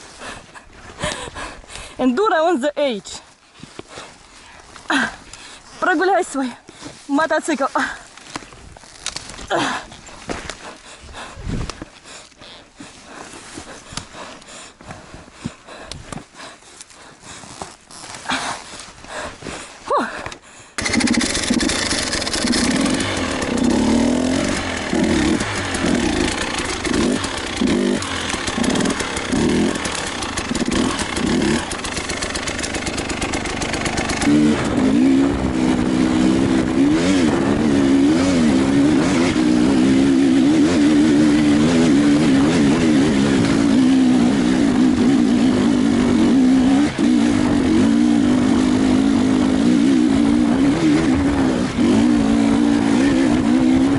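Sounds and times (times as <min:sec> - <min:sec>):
motorcycle engine under throttle: 0:20.8 - 0:53.9.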